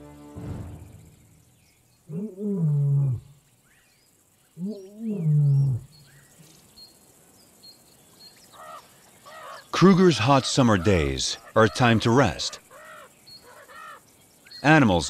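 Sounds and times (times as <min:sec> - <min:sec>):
faint bird chirps: 0:00.6 - 0:15.0
lion roaring: 0:02.1 - 0:03.4, 0:04.6 - 0:05.9.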